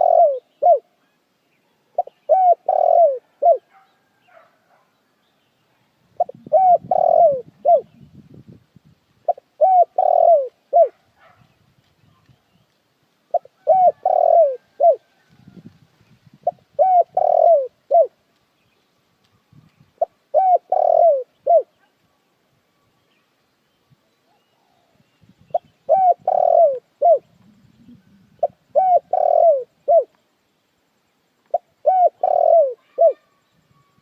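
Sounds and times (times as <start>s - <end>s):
dove cooing: 0.0s - 0.9s, 2.0s - 3.8s, 6.2s - 8.0s, 9.2s - 11.4s, 13.3s - 15.6s, 16.4s - 18.2s, 20.0s - 21.8s, 24.4s - 30.2s, 31.5s - 33.4s.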